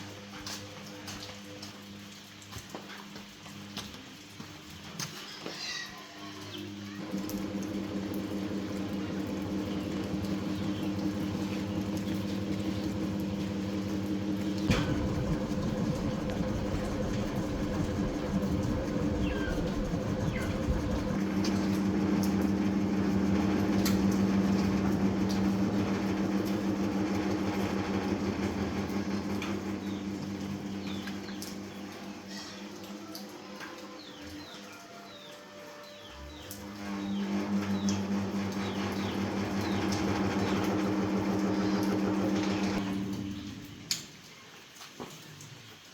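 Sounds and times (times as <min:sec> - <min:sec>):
electric fan motor humming: 0:06.6 - 0:34.4, 0:36.2 - 0:44.2.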